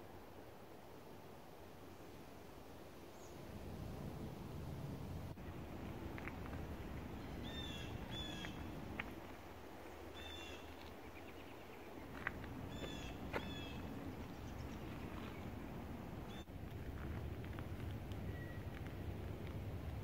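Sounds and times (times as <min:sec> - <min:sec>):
birds calling: 0:07.0 - 0:08.8, 0:09.8 - 0:16.5.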